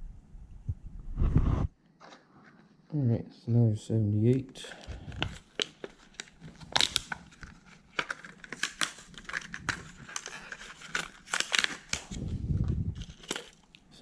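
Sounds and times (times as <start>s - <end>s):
plastic packaging crinkling: 4.4s - 14.0s.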